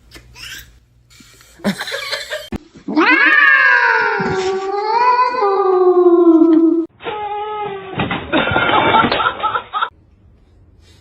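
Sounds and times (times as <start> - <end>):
cat yowling: 2.9 - 8.0.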